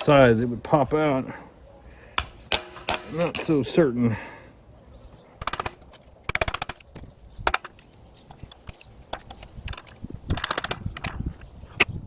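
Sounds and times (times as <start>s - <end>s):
tool chipping with metal knocks: 2.2s - 3.6s.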